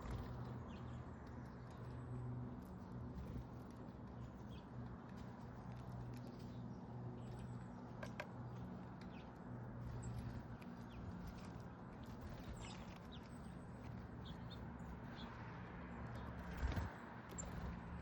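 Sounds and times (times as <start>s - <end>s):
small birds chirping: 5.9s - 15.4s, 16.0s - 18.0s.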